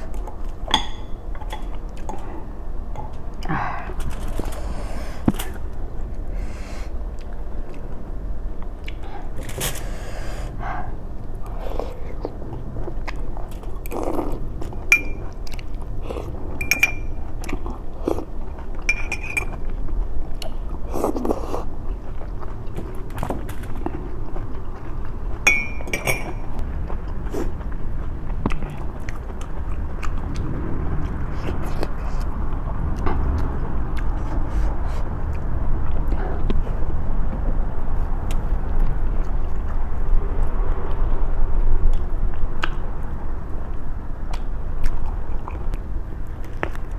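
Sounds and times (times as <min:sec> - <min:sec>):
chewing and biting: 0:00.0 - 0:46.9
steady low hum: 0:00.0 - 0:46.9
utensils clinking against dishes: 0:00.7 - 0:01.8, 0:14.9 - 0:15.4, 0:16.6 - 0:17.3, 0:18.9 - 0:19.6, 0:25.5 - 0:26.5.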